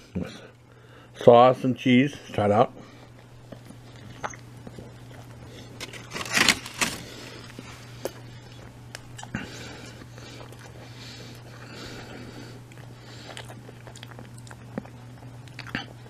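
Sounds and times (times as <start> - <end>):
quiet chewing: 2.8 - 16.0
foil rustle: 5.7 - 7.6.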